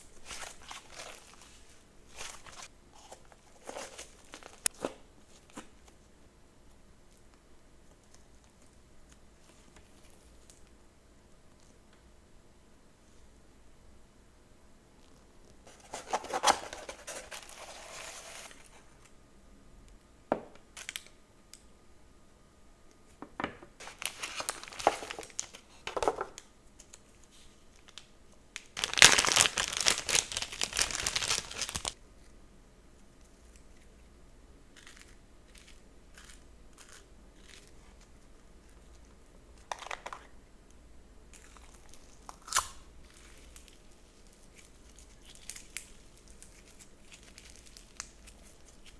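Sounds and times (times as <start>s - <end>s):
plastic packaging crinkling and tearing: 0.1s - 5.6s, 15.7s - 18.8s, 23.8s - 32.0s, 41.4s - 48.9s.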